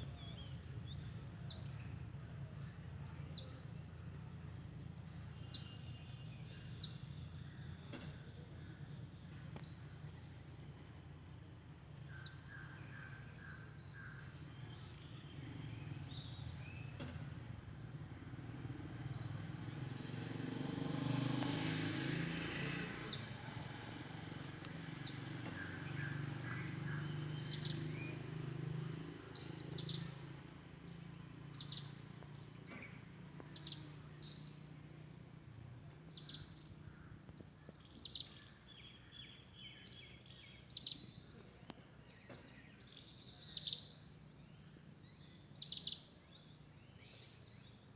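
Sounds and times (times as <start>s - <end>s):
wild birds chirping and calling: 24.9s - 30.2s.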